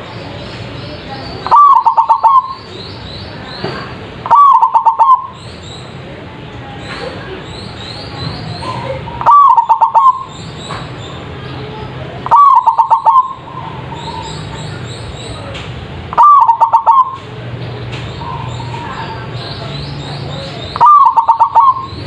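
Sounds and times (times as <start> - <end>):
small birds chirping: 0.0 - 22.0
dove cooing: 1.4 - 2.6, 4.2 - 5.4, 8.6 - 10.3, 12.2 - 14.6, 16.1 - 17.3, 20.8 - 22.0.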